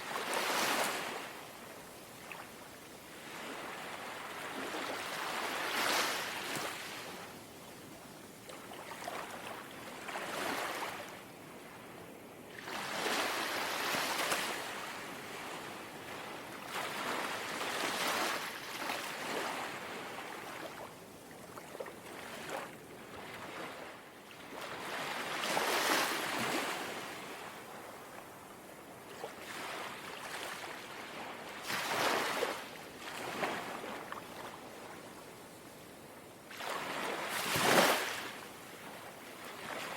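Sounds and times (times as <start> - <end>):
sea waves lapping on shore: 29.1 - 35.2, 36.5 - 39.9.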